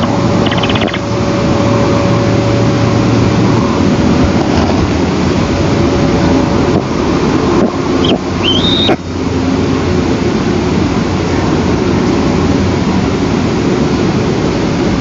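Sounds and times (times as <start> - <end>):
high bird call: 0.0 - 1.1, 8.0 - 9.0.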